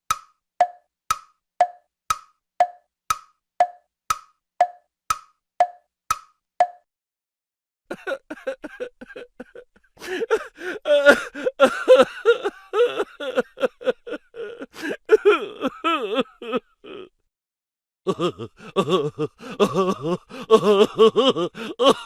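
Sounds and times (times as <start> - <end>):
person making laugh-like noises: 7.9 - 17.2, 18.1 - 22.0.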